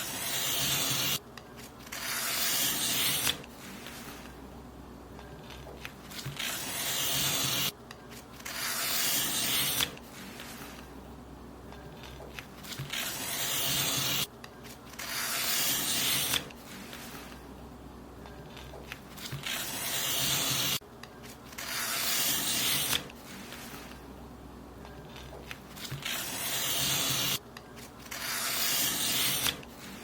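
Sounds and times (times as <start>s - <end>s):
scissors cutting paper: 0.0s - 4.4s, 5.4s - 10.8s, 11.8s - 14.3s, 14.9s - 17.4s, 18.4s - 24.0s, 24.9s - 30.0s
faint paper rustling: 9.6s - 10.9s, 16.0s - 17.4s, 21.0s - 24.0s, 24.8s - 30.0s.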